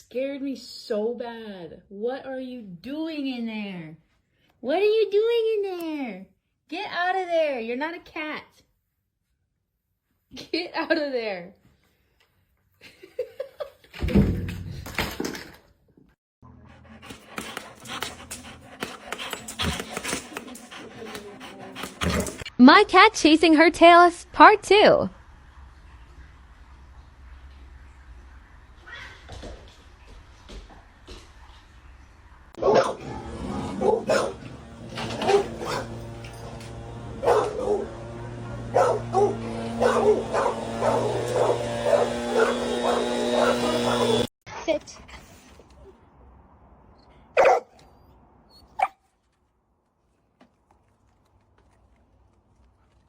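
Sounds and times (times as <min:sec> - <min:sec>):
dog panting: 0:16.5 - 0:22.5, 0:33.8 - 0:44.3.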